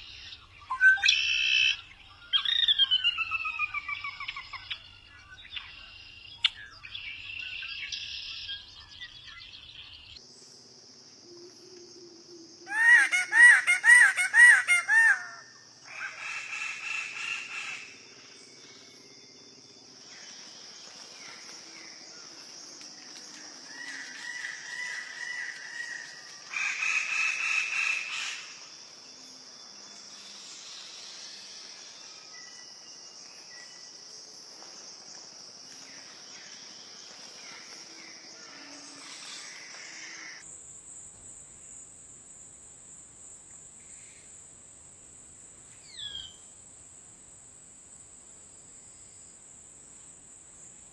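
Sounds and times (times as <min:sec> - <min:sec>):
birds calling: 0:12.7 - 0:18.0.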